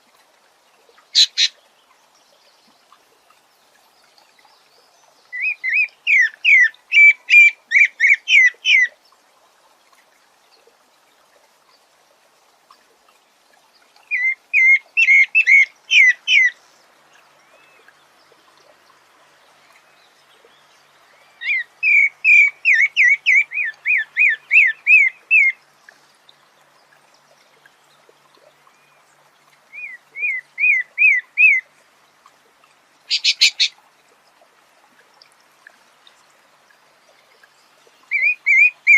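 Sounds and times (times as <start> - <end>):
bird singing whistled notes: 33.1 - 33.7, 38.1 - 38.9.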